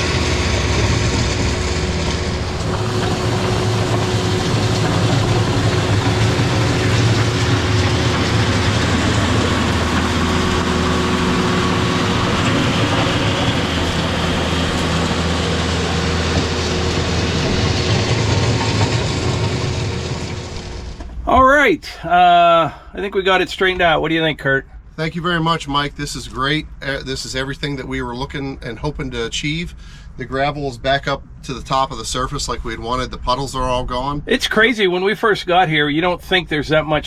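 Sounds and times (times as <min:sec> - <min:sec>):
tractor diesel engine running: 0:00.0 - 0:25.4.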